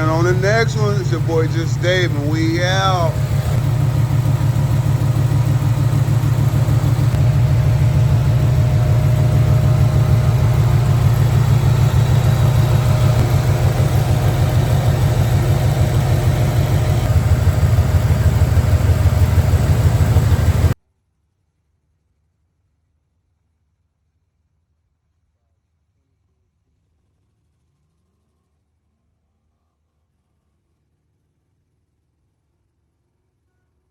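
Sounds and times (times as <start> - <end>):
car engine idling: 0.0 - 20.8.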